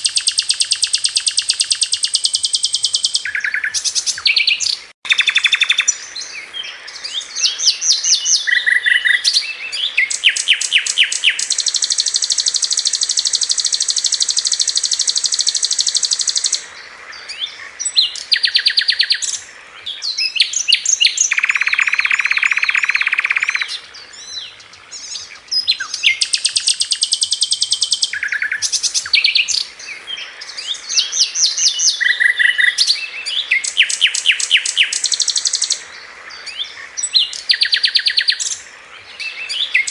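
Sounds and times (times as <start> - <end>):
bird trilling and chattering: 0.0 - 6.0, 7.4 - 16.6, 20.2 - 29.7, 30.5 - 35.8.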